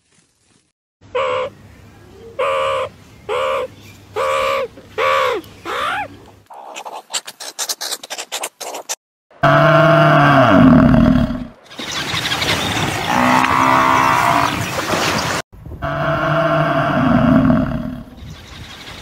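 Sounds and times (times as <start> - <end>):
bird calling: 1.0 - 9.0.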